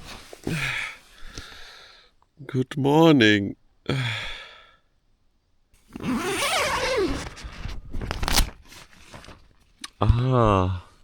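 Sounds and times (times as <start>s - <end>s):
tent zipper pulled open: 5.9s - 9.3s
fabric rustling: 5.9s - 9.7s.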